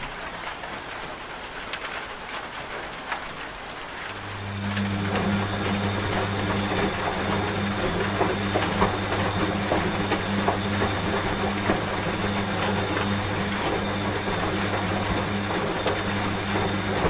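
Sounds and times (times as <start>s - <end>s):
rain drops pattering: 0.0s - 17.0s
washing machine humming: 3.7s - 17.0s.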